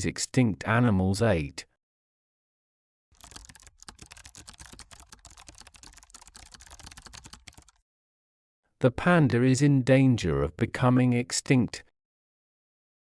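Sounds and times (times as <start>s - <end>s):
keyboard typing: 3.2s - 7.8s.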